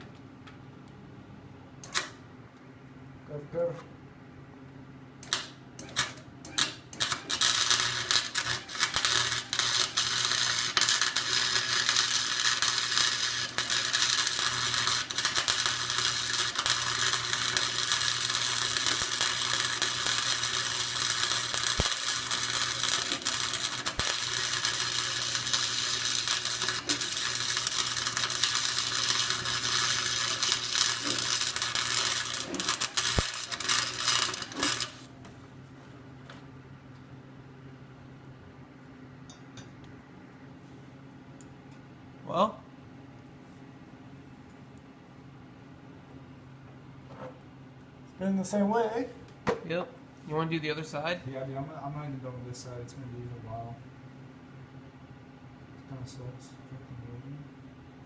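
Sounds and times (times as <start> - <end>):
welder arc crackling: 5.2 - 35.1
welder low hum: 5.2 - 35.3.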